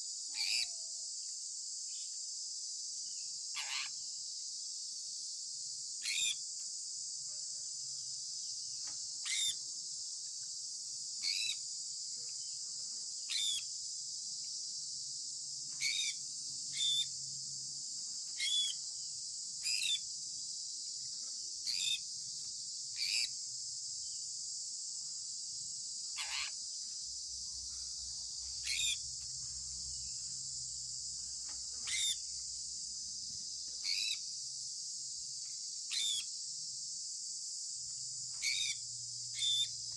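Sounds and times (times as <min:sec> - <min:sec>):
parrot chirping: 0:09.2 - 0:09.6, 0:11.2 - 0:11.6, 0:13.3 - 0:13.6, 0:15.8 - 0:17.1, 0:18.4 - 0:18.8, 0:26.2 - 0:26.6, 0:28.6 - 0:29.0, 0:31.8 - 0:32.2, 0:38.4 - 0:38.8, 0:39.4 - 0:39.7.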